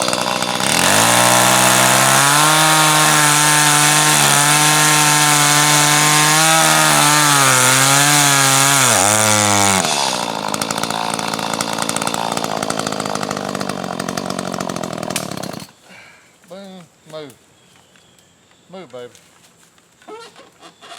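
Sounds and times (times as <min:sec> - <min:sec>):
chainsaw cutting wood: 0:00.0 - 0:15.8.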